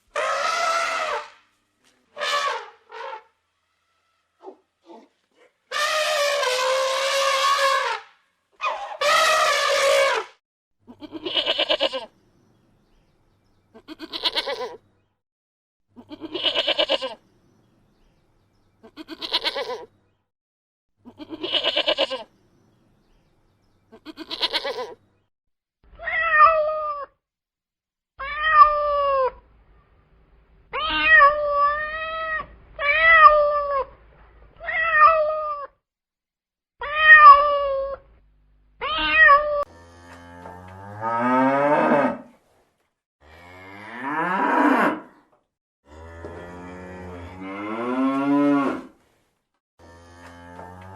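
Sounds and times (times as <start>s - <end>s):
goat bleating: 10.9s - 12.1s, 13.7s - 14.8s, 16.0s - 17.2s, 18.8s - 19.9s, 21.0s - 22.3s, 23.9s - 25.0s
cat meowing: 26.0s - 27.1s, 28.2s - 29.4s, 34.6s - 35.8s, 36.8s - 38.0s, 38.8s - 39.6s
cow mooing: 39.6s - 42.3s, 45.9s - 48.9s, 49.8s - 50.9s.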